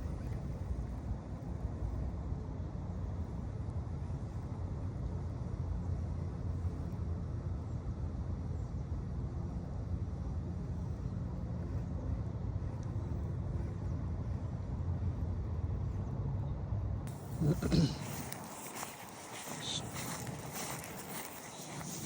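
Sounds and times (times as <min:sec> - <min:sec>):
engine low rumble: 0:00.0 - 0:22.0.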